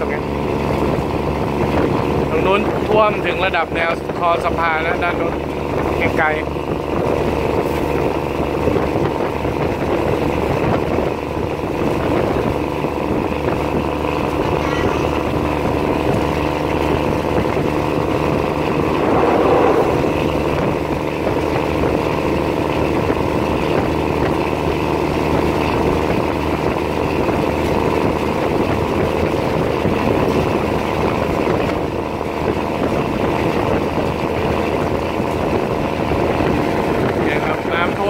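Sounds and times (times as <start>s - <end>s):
train engine drone: 16.2s - 22.4s.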